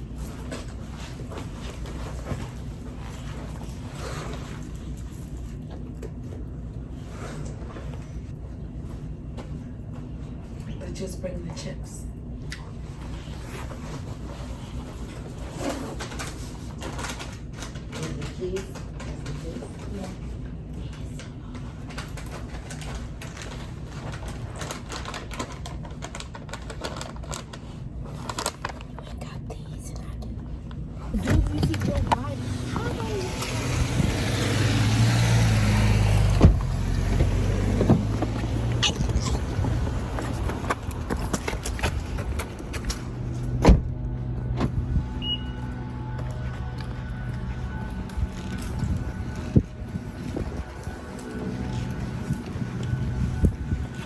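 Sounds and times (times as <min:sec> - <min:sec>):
low hum: 0:20.3 - 0:54.0.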